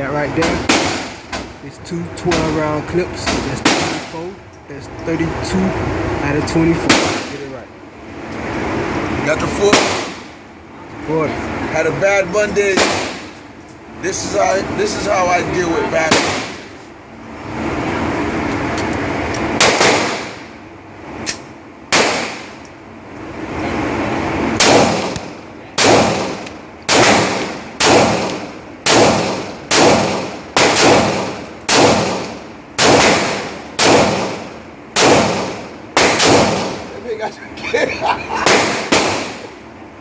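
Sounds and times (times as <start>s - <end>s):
gunshots: 0.5s - 1.2s, 3.6s - 4.1s, 6.8s - 7.4s, 9.6s - 10.3s, 12.7s - 13.3s, 16.0s - 16.7s, 19.6s - 20.5s, 21.9s - 22.6s, 24.6s - 36.9s, 38.4s - 39.5s.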